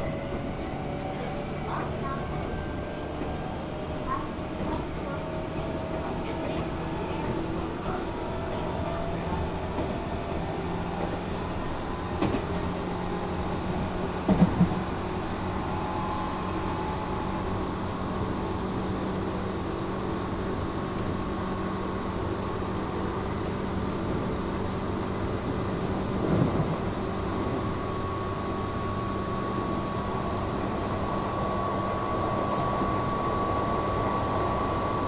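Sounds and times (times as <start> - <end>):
train wheels and motors rumbling: 0.0 - 35.0
thin steady whine: 27.7 - 35.0.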